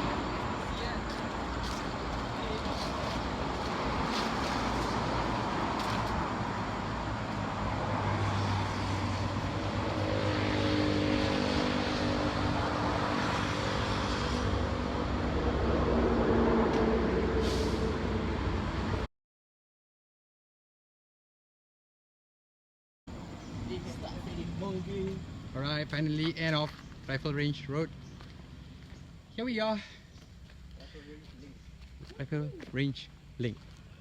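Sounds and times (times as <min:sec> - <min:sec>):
heavy vehicle engine hum: 0:00.0 - 0:19.1
road traffic passing: 0:00.0 - 0:19.1, 0:23.1 - 0:34.0.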